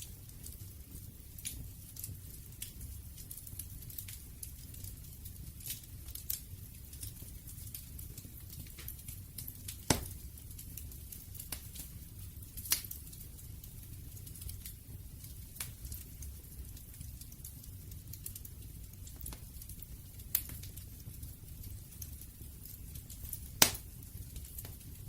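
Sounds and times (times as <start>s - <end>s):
burning wood crackling and popping: 0.0s - 25.0s
low rumble of flames: 0.0s - 25.0s.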